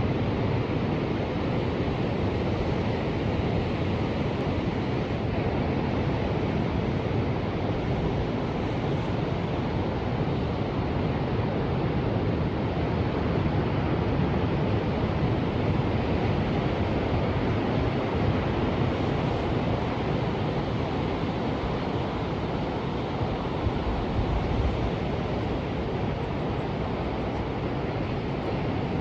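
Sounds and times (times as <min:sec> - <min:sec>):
ocean waves washing: 0:01.3 - 0:29.0.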